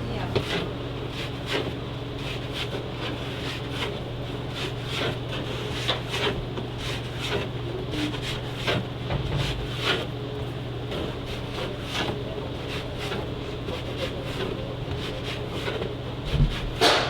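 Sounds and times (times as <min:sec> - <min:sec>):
steady low hum: 0:00.0 - 0:17.0
light knocks and rubbing: 0:10.9 - 0:17.0.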